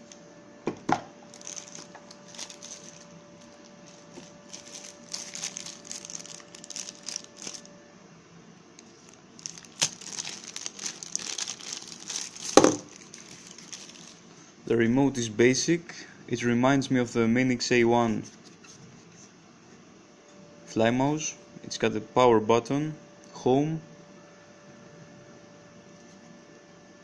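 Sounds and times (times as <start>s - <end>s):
plastic packaging crinkling: 1.3s - 7.7s, 8.8s - 14.3s.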